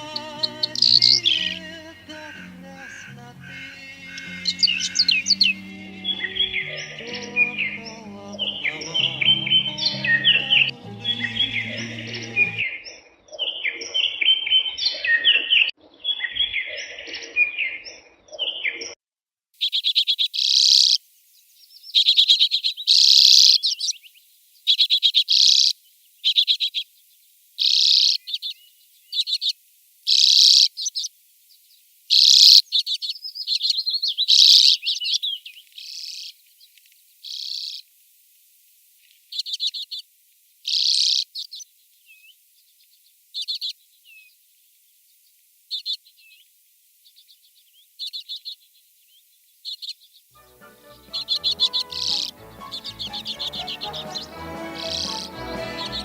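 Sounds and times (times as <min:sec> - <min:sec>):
dense bird chirping: 0:00.0 - 0:12.7, 0:21.7 - 0:24.1, 0:24.7 - 0:26.8, 0:27.6 - 0:29.5, 0:32.1 - 0:37.8, 0:51.0 - 0:56.0
bird singing short high phrases: 0:00.0 - 0:12.8, 0:32.1 - 0:36.4, 0:49.6 - 0:56.0.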